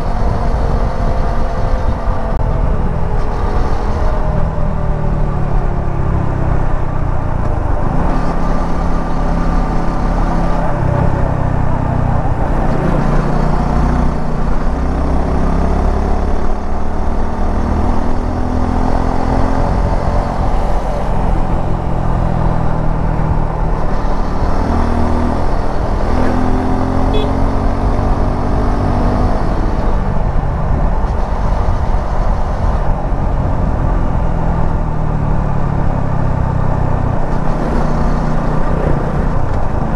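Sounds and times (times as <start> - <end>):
wind and road noise: 0.0 - 39.9
motorcycle engine revving: 7.6 - 34.2, 36.6 - 39.9.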